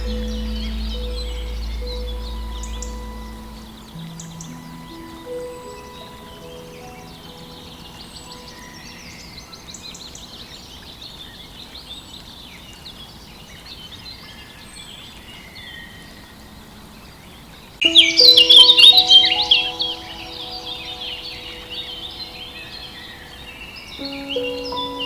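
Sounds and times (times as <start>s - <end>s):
held musical tones: 0.0s - 9.0s, 17.8s - 25.0s
birds chirping and trilling: 0.0s - 25.0s.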